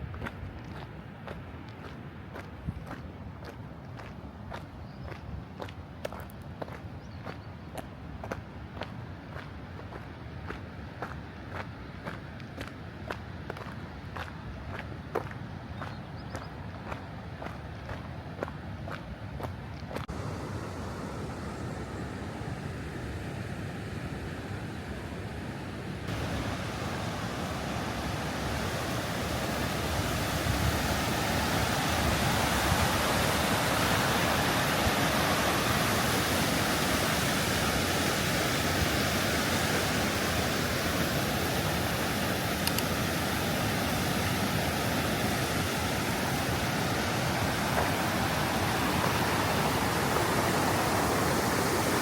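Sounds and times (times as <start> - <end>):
waterfall crashing down: 26.1 - 52.0.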